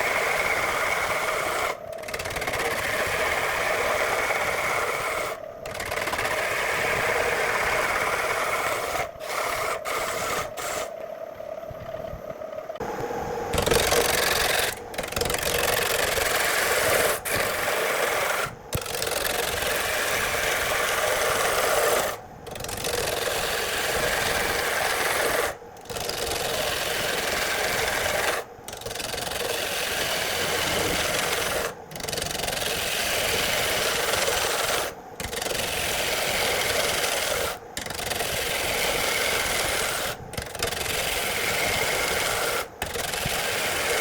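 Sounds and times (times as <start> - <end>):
abrasive rasping on wood: 13.7 - 44.0.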